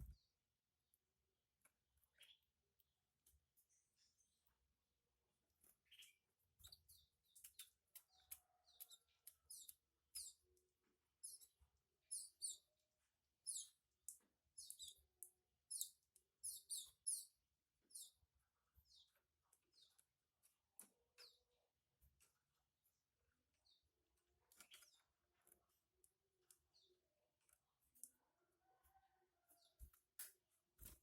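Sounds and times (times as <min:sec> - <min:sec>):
canaries chirping faintly: 0:05.5 - 0:30.0.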